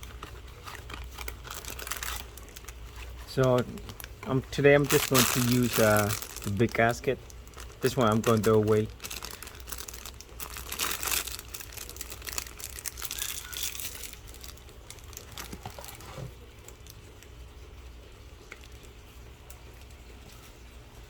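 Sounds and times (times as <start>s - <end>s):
packaging crinkling and rustling: 0.0s - 17.4s.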